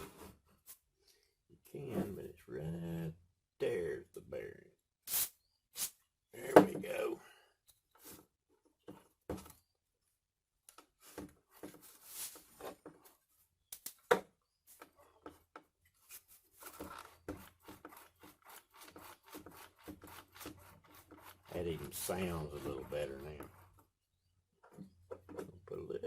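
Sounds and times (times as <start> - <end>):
sander roller rubbing and ticking: 14.8 - 24.0.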